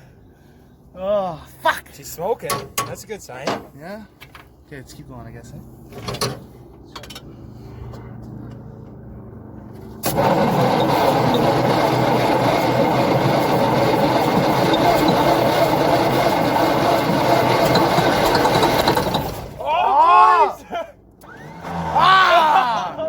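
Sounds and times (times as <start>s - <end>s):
truck engine cranking on starter: 9.8s - 19.6s, 21.2s - 22.2s.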